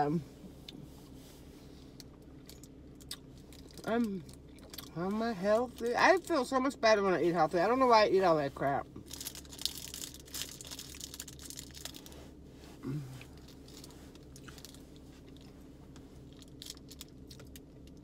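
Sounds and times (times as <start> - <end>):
chewing with crunching bites: 1.9 - 4.9, 13.1 - 18.0.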